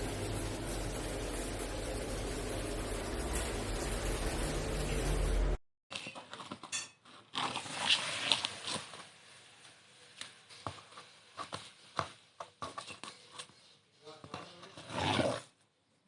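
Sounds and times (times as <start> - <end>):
rustling and scraping: 5.9 - 15.6.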